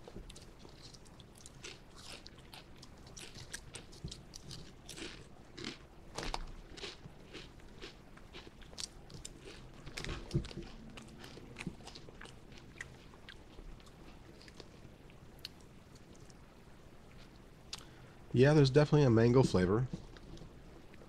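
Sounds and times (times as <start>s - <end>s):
person crunching potato chip: 0.3s - 14.8s.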